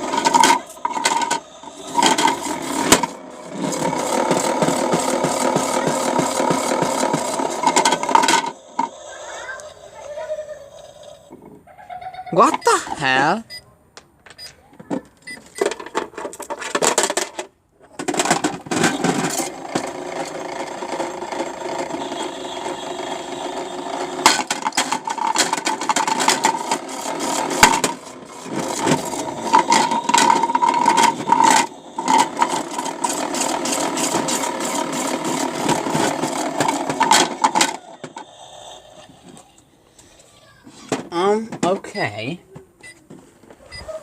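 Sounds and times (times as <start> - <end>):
bricks rattling in a drum: 0.0 - 9.0, 15.6 - 22.1, 23.5 - 38.3
toy washing machine motor: 0.0 - 11.4, 18.0 - 40.6.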